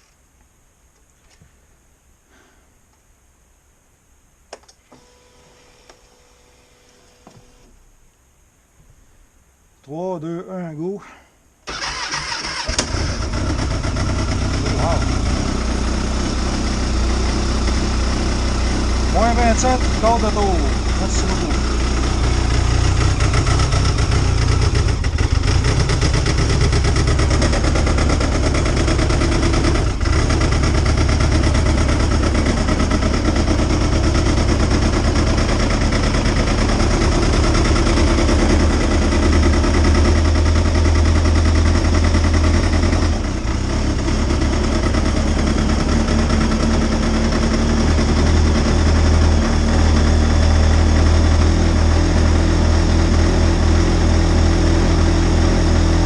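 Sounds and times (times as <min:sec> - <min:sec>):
snowmobile engine idling: 0:12.8 - 0:56.0.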